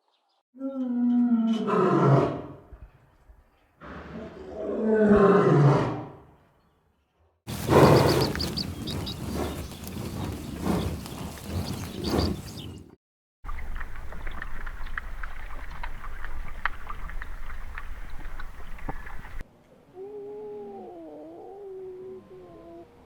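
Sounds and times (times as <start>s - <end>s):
steady low rumble: 7.5s - 12.9s.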